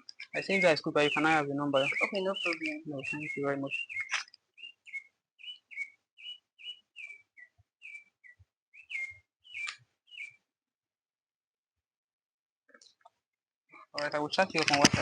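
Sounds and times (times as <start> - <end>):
whistled chirps sliding down: 0.4 - 10.4.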